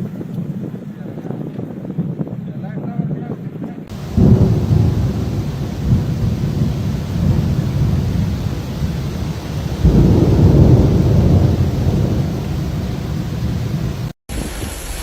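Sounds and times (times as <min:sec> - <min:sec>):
heavy low rumble: 0:03.9 - 0:14.2
steady rain hiss: 0:03.9 - 0:15.0.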